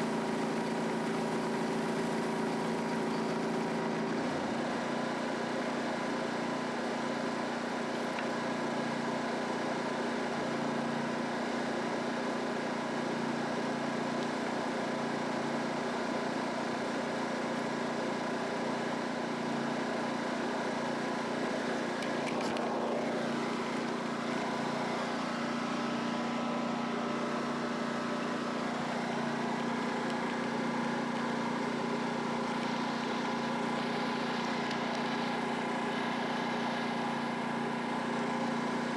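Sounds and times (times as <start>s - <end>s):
water spray hiss: 0.0s - 3.9s
pressure washer engine running: 0.0s - 38.9s.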